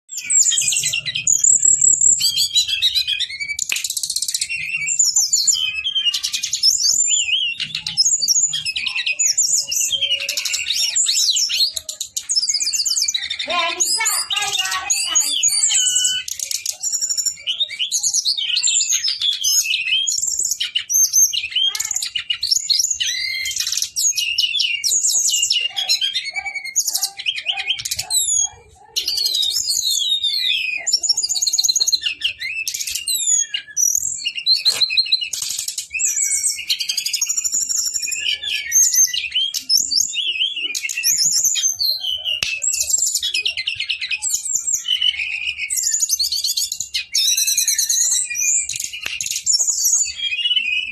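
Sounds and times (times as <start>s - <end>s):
birds singing warbles and whistles: 0.1s - 50.9s.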